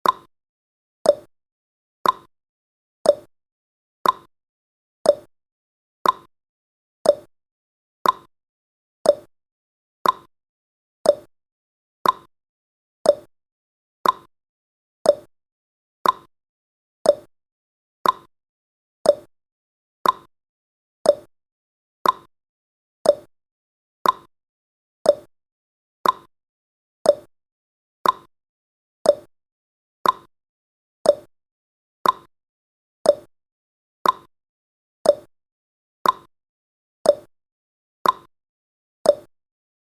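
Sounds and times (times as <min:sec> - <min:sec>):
timer ticking: 0:00.0 - 0:00.3, 0:01.0 - 0:01.3, 0:02.0 - 0:02.3, 0:03.0 - 0:03.3, 0:04.0 - 0:04.3, 0:05.1 - 0:05.3, 0:06.0 - 0:06.3, 0:07.0 - 0:07.3, 0:08.0 - 0:08.3, 0:09.0 - 0:09.3, 0:10.0 - 0:10.3, 0:11.0 - 0:11.3, 0:12.0 - 0:12.3, 0:13.0 - 0:13.3, 0:14.0 - 0:14.3, 0:15.0 - 0:15.3, 0:16.0 - 0:16.3, 0:17.0 - 0:17.3, 0:18.0 - 0:18.3, 0:19.0 - 0:19.3, 0:20.0 - 0:20.3, 0:21.0 - 0:21.3, 0:22.0 - 0:22.3, 0:23.0 - 0:23.3, 0:24.0 - 0:24.3, 0:25.0 - 0:25.3, 0:26.0 - 0:26.3, 0:27.0 - 0:27.3, 0:28.0 - 0:28.3, 0:29.0 - 0:29.3, 0:30.0 - 0:30.3, 0:31.0 - 0:31.3, 0:32.0 - 0:32.3, 0:33.0 - 0:33.3, 0:34.0 - 0:34.3, 0:35.0 - 0:35.3, 0:36.0 - 0:36.3, 0:37.1 - 0:37.3, 0:38.0 - 0:38.3, 0:39.1 - 0:39.3.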